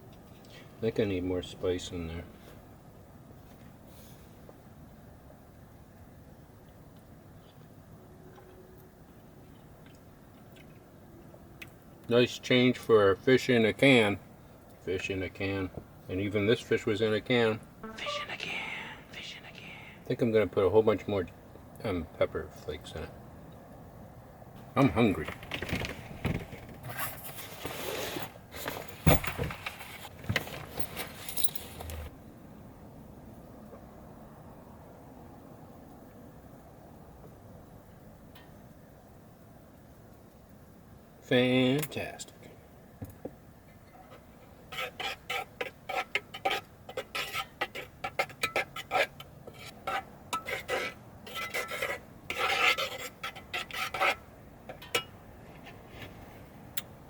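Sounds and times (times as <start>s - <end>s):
rustling: 25.4s - 32.1s
metal utensil scraping a plate: 44.0s - 55.1s.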